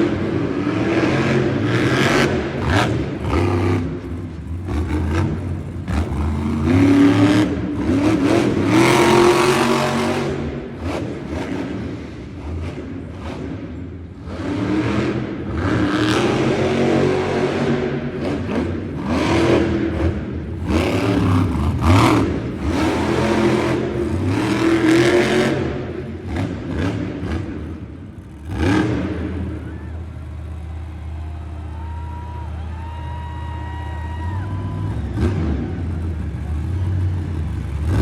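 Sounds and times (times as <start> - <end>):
truck engine revving and idling: 0.0 - 38.0.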